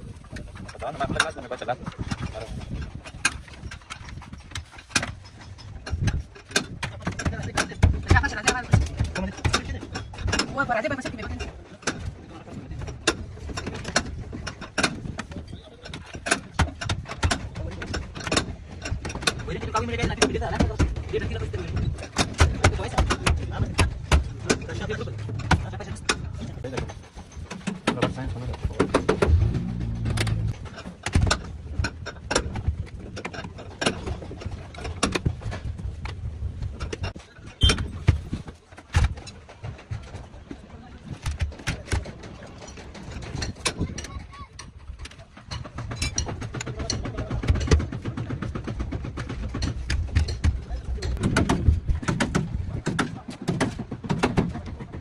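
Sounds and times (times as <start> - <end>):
sharp knocks and clicks: 0.4 - 40.2, 41.2 - 55.0
steady low rumble: 24.0 - 26.7, 28.9 - 30.6.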